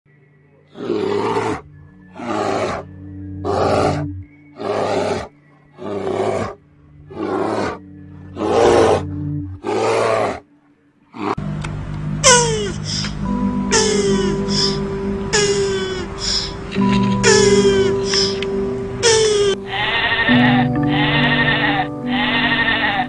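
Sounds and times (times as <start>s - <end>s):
large animal roaring: 0.7s - 10.4s, 11.1s - 11.4s
music drone: 1.6s - 9.6s, 11.4s - 23.0s.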